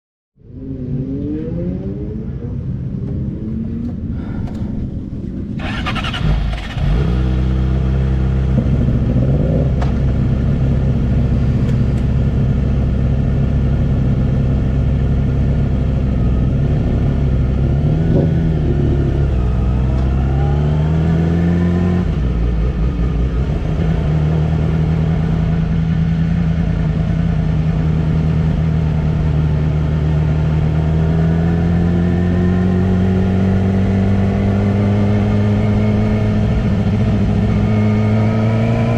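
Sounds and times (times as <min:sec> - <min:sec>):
motorcycle engine running: 0:05.6 - 0:38.9.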